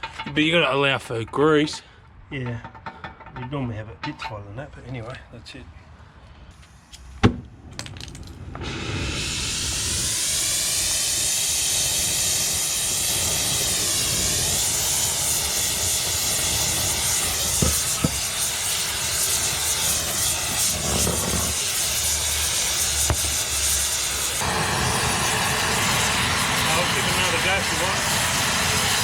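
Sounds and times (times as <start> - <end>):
gas torch hissing: 8.5 - 29.0.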